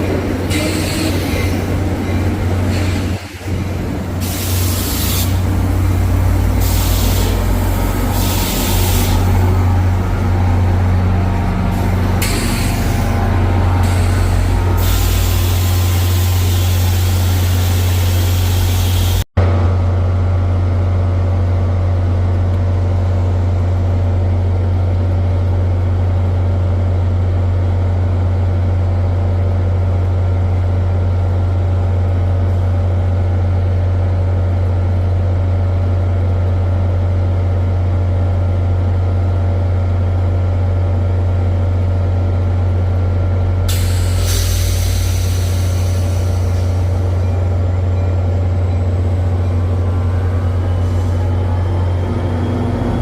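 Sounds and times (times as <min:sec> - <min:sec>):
locomotive engine humming: 0:00.0 - 0:53.0
air hissing: 0:06.5 - 0:09.4, 0:43.7 - 0:47.0.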